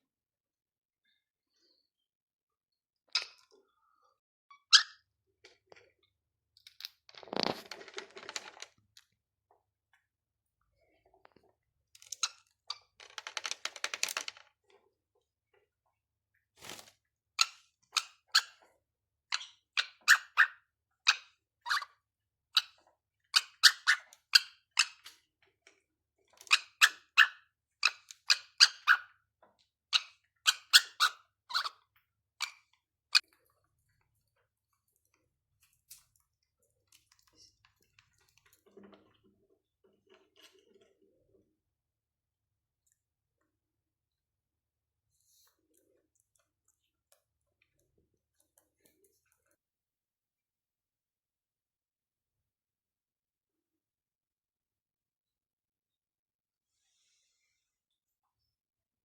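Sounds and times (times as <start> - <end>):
cockatiel clicks and squeaks: 17.4 - 18.7, 19.3 - 21.9, 23.4 - 25.2, 26.5 - 29.1, 29.9 - 31.8.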